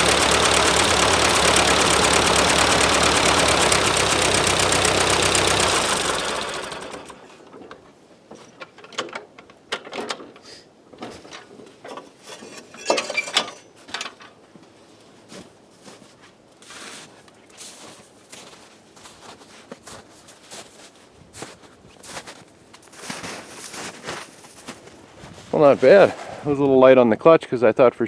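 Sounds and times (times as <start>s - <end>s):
tractor engine shutting off: 0.0s - 7.5s.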